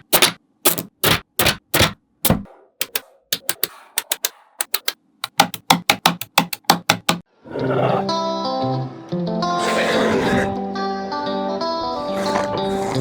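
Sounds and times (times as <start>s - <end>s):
magnetic balls clicking together: 2.8s - 7.3s.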